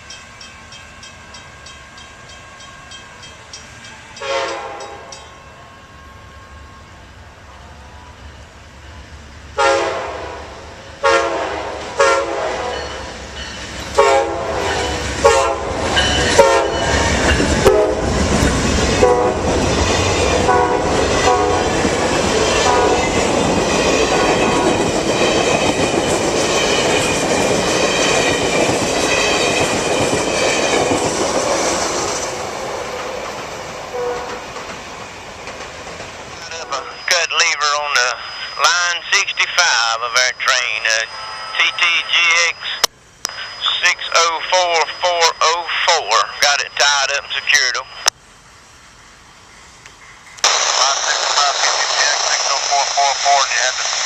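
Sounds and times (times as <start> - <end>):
locomotive horn blasts: 4.2 - 6.9, 9.6 - 13.0, 14.0 - 16.9, 17.6 - 18.1, 19.0 - 19.4, 20.4 - 21.8, 22.6 - 23.1, 33.9 - 34.4
train wheels clattering on rails: 15.8 - 36.4.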